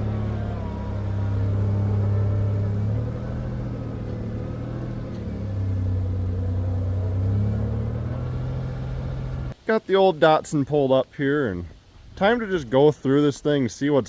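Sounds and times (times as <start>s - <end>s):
vehicle engine driving: 0.0s - 9.6s.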